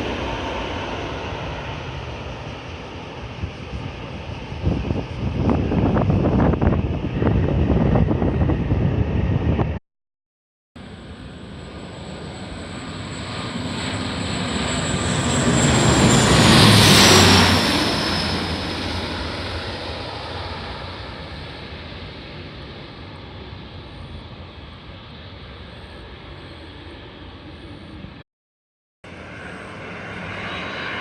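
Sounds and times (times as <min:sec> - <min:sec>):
aircraft rumble: 0:00.0 - 0:09.8, 0:10.8 - 0:28.2, 0:29.0 - 0:31.0
airliner passing overhead: 0:00.0 - 0:09.8, 0:10.8 - 0:28.2, 0:29.1 - 0:31.0.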